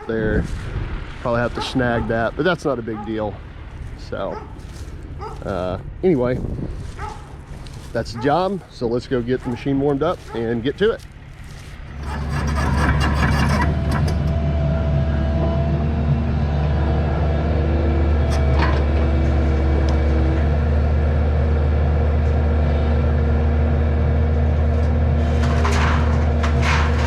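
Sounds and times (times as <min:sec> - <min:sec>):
diesel engine idling: 0:07.2 - 0:27.0
rattling clatter: 0:11.2 - 0:14.6, 0:24.8 - 0:27.0.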